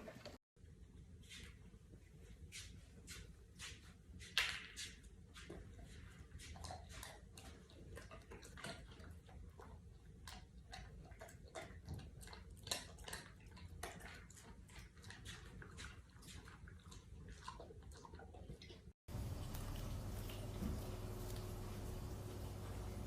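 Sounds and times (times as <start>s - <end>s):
dog chewing a treat: 5.5s - 23.0s.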